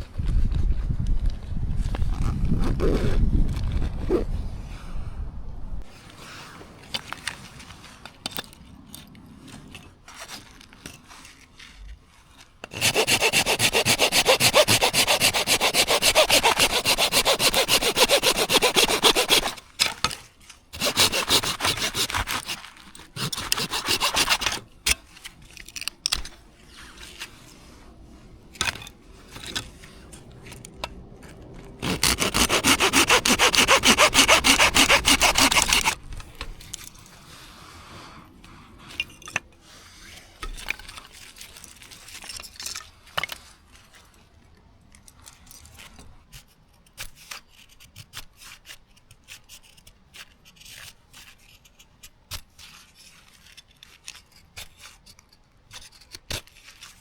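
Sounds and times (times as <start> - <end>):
hand saw cutting wood: 12.6 - 25.2, 31.8 - 36.0.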